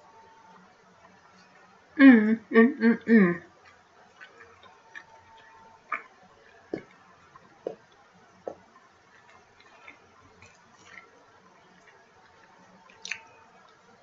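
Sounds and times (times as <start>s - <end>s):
chewing: 3.5s - 14.0s.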